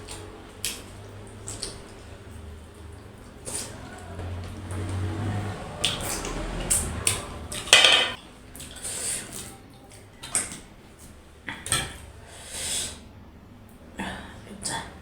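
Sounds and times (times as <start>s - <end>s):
dishes and utensils clinking: 7.5s - 8.2s.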